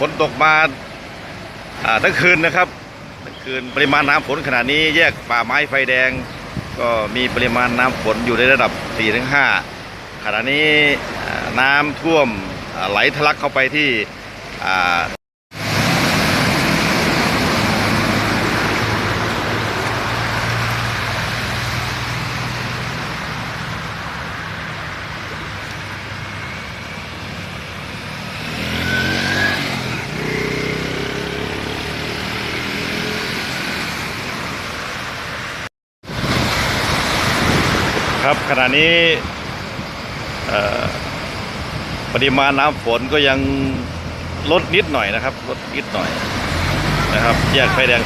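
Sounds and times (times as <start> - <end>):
steady rushing water: 0.0 - 48.0
vehicle engines passing: 13.8 - 48.0.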